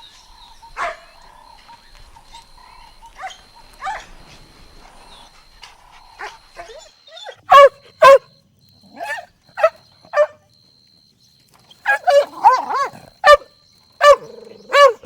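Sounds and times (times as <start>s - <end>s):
puppy yipping and barking: 6.2s - 8.3s, 11.9s - 15.0s.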